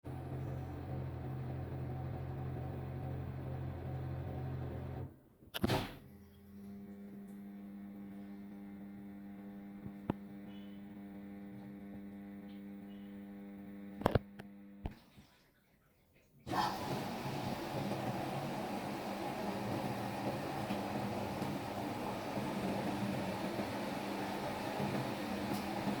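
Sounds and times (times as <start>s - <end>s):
electrical hum: 0.0s - 14.9s, 16.5s - 26.0s
rumbling hum: 0.1s - 5.0s.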